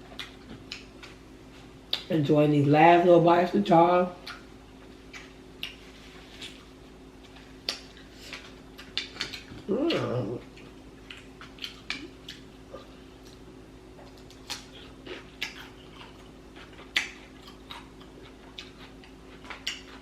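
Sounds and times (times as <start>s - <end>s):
lip smacks: 1.9s - 2.1s, 5.1s - 5.8s, 7.6s - 10.1s
wet chewing clicks: 7.3s - 12.5s, 14.0s - 20.0s.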